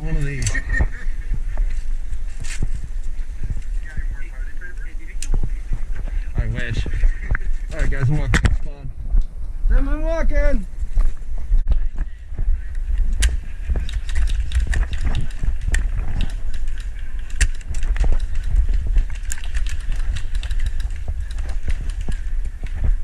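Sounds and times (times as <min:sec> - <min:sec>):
wind buffeting microphone: 0:00.0 - 0:23.0
footsteps and rattling gear: 0:12.8 - 0:23.0.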